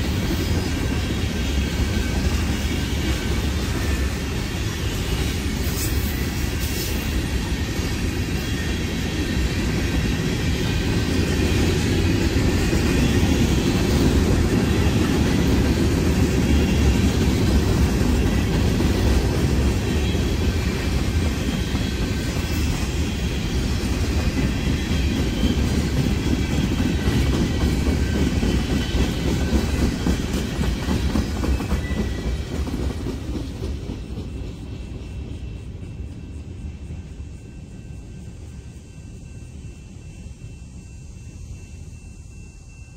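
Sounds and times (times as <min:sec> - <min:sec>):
train wheels rumbling on rails: 0:00.0 - 0:42.9.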